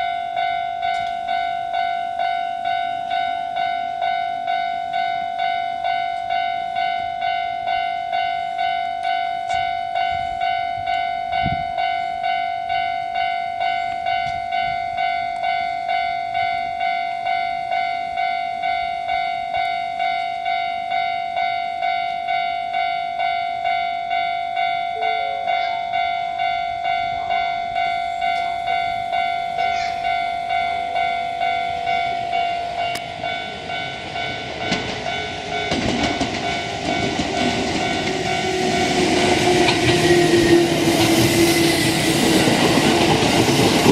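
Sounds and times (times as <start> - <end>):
electronic warning bell ringing: 0.0 - 42.5
train rumble: 21.8 - 43.9.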